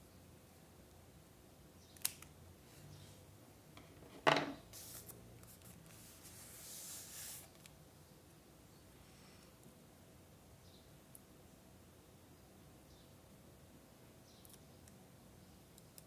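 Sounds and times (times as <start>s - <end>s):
small hard object knocking on desk: 3.8s - 4.6s
paper rustling and rubbing: 4.7s - 7.6s.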